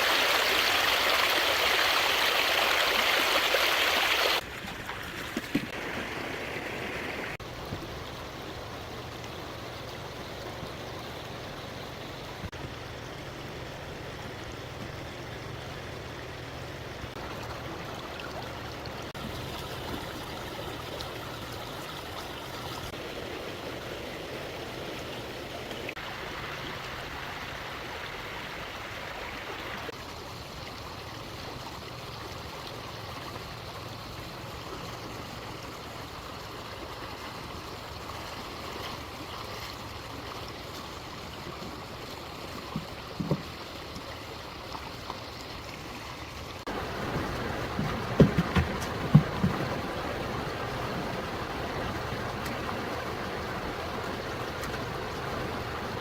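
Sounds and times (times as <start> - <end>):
stream water flowing: 0.0 - 56.0
short knocks: 47.0 - 49.8.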